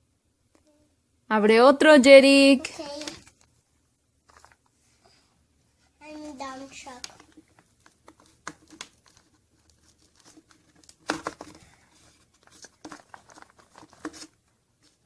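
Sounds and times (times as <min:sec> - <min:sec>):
foil wrapper crinkling and tearing: 0:07.1 - 0:15.0.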